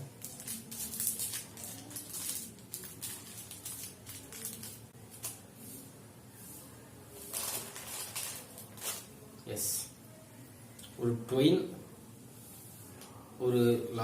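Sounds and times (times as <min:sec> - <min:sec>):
plastic wrapper crinkling: 0:00.0 - 0:05.4, 0:07.3 - 0:09.2.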